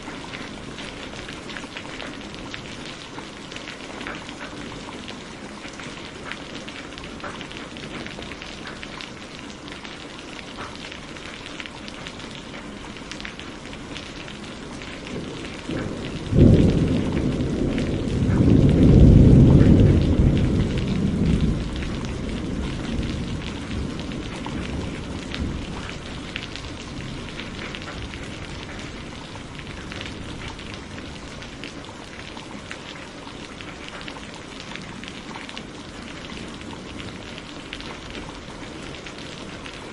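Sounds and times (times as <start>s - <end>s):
heavy rain falling: 0.0s - 39.9s
thunder rumbling: 13.8s - 39.9s.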